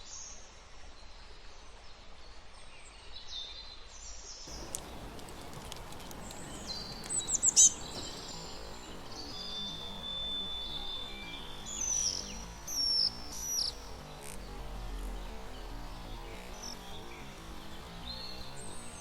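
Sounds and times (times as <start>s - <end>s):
high steady whistle: 4.5s - 13.8s
background hiss: 4.5s - 19.0s
wild birds chirping: 4.5s - 19.0s.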